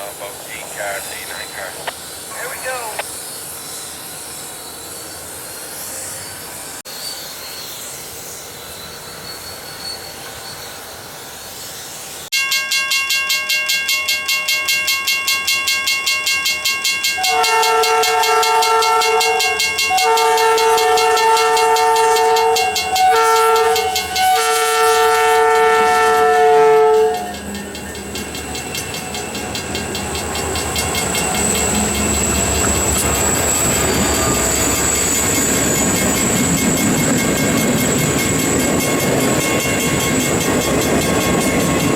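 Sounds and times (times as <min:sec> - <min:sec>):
crossing warning bell ringing: 0:12.3 - 0:41.9
locomotive air horn: 0:17.2 - 0:27.5
locomotive rumble: 0:20.3 - 0:41.9.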